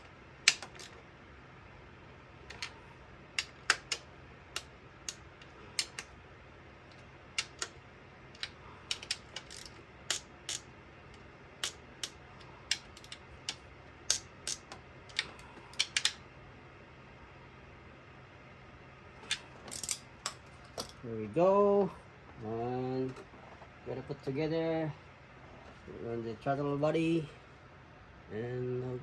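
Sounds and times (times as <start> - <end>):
hand tools clicking and tapping: 0.0 - 1.0, 3.4 - 4.0, 4.6 - 6.1, 7.4 - 7.8, 8.4 - 10.6, 11.6 - 16.2.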